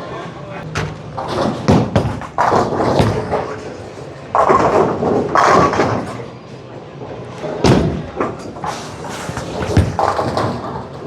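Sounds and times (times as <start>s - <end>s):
bowling balls thudding: 0.7s - 6.1s, 7.5s - 11.0s
bowling pins crashing: 0.8s - 3.8s, 7.6s - 11.0s.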